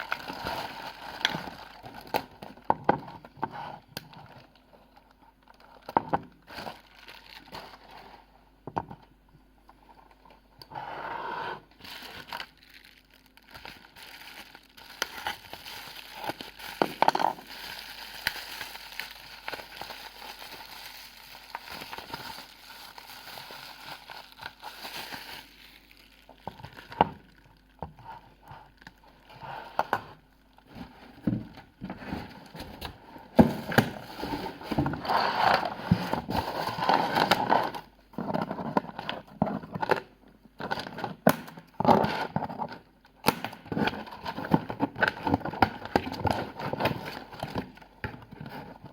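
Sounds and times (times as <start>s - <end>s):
wrapping material crinkling: 0.0s - 8.3s, 11.7s - 40.0s.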